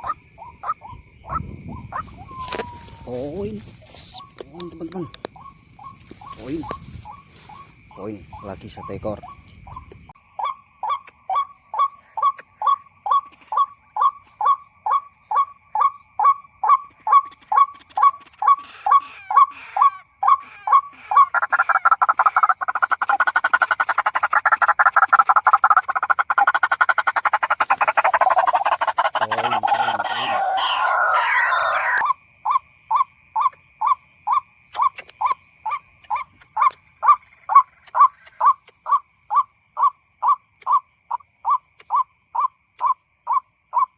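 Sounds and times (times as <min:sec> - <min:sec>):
rapid overlapping bird calls: 0:00.0 - 0:24.2, 0:25.3 - 0:43.9
bird calls from a speaker: 0:07.9 - 0:09.8, 0:28.0 - 0:32.1.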